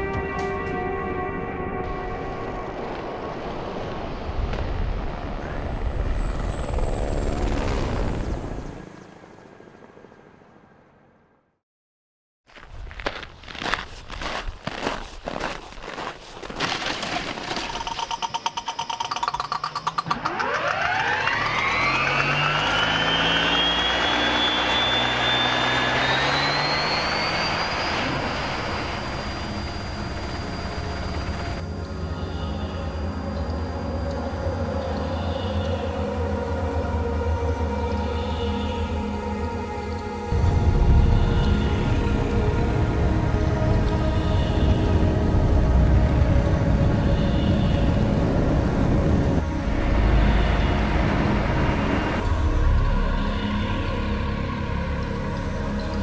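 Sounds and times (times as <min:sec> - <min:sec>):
helicopter low rumble: 0:00.0 - 0:11.4, 0:17.5 - 0:32.1, 0:35.4 - 0:54.6
turbine engine whine: 0:00.0 - 0:11.6, 0:17.0 - 0:56.0
low hum: 0:16.9 - 0:56.0
turbine engine ticking: 0:17.7 - 0:31.6.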